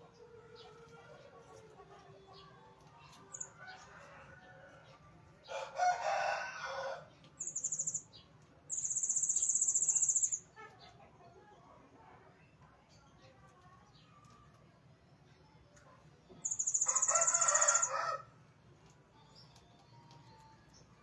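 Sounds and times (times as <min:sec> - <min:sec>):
rooster crowing: 0:05.5 - 0:07.1, 0:16.8 - 0:18.3
faint bird chirps: 0:07.4 - 0:10.6, 0:16.3 - 0:18.0.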